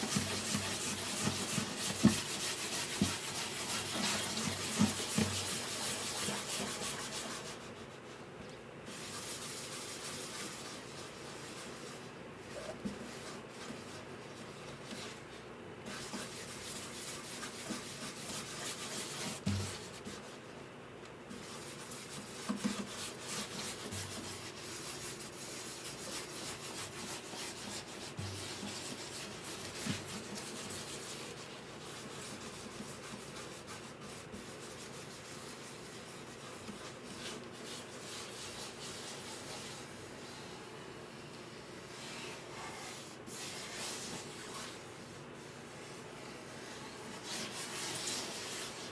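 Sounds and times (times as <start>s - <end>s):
sanding wood by hand: 0.0s - 7.6s, 21.5s - 39.7s.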